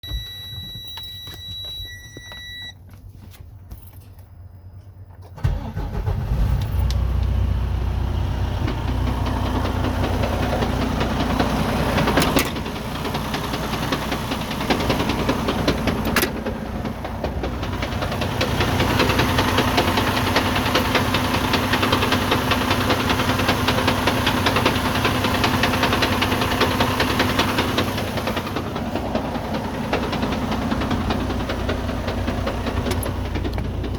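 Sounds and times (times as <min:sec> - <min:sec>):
electronic warning beep: 0:00.0 - 0:02.8
diesel engine cranking and idling: 0:04.2 - 0:33.9.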